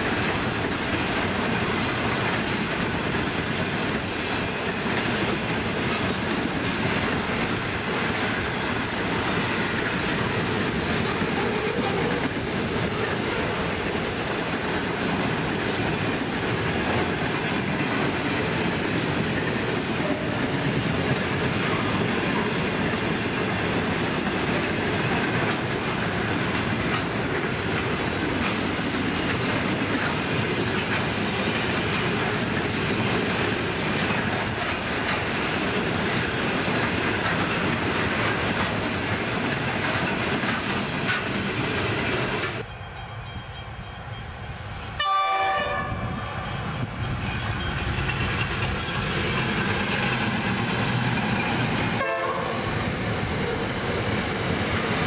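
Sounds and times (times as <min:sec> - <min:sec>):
freight train rolling past: 0:00.0 - 0:55.0
locomotive horn blast: 0:45.0 - 0:46.5, 0:52.0 - 0:52.6.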